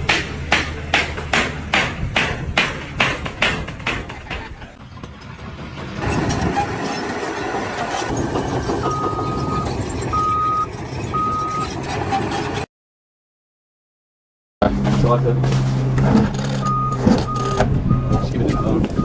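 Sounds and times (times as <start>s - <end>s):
heavy vehicle engine running: 0.0s - 12.6s, 14.6s - 19.0s
reversing alarm beeping: 8.8s - 11.7s, 16.6s - 19.0s.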